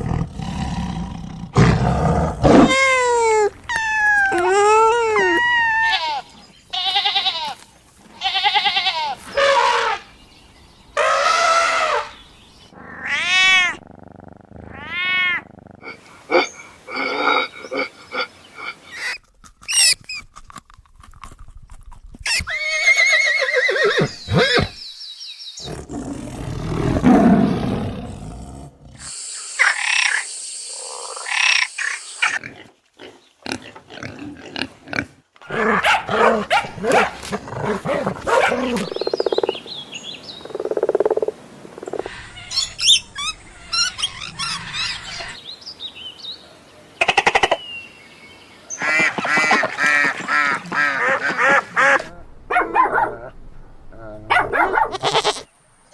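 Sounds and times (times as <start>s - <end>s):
animal cries and roars: 0.0s - 6.2s, 12.8s - 20.0s, 41.9s - 45.4s.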